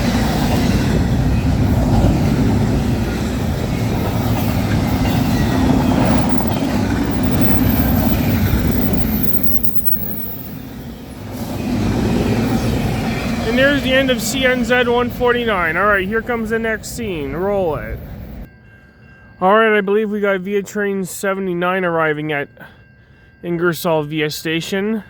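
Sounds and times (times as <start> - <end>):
freight train wheels rumbling on rail: 0.0 - 18.5.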